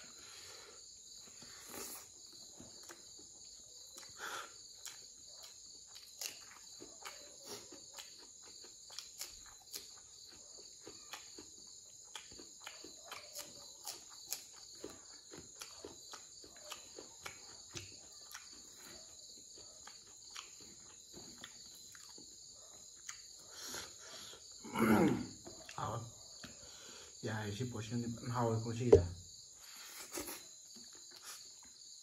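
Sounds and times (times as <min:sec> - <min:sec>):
crickets trilling: 0:00.0 - 0:32.0
chewing clicks and crunches: 0:01.6 - 0:24.6, 0:30.2 - 0:32.0.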